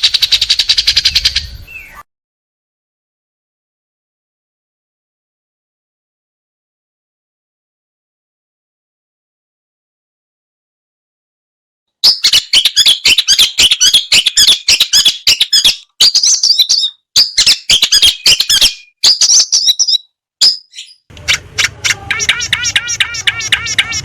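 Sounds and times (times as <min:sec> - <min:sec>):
bird harsh chattering song: 0:00.0 - 0:02.0, 0:12.0 - 0:24.0
fast even trill: 0:21.1 - 0:24.0.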